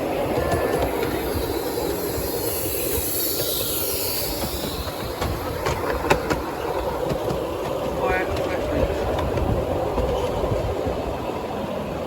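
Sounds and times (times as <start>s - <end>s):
train rumbling along track: 0.0s - 12.0s
faint wheel squeal: 0.4s - 6.7s.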